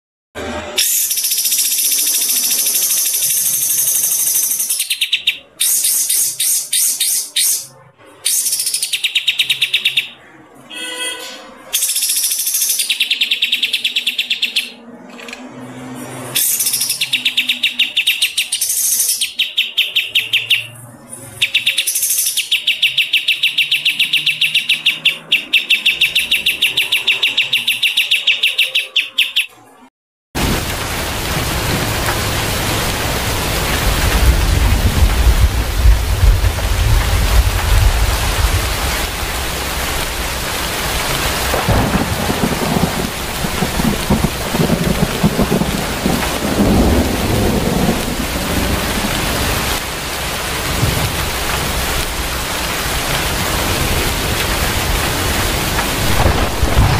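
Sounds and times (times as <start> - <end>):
heavy rain: 0.4 - 4.8, 30.4 - 56.9
low thunder-like rumble: 30.4 - 52.4, 53.0 - 56.9.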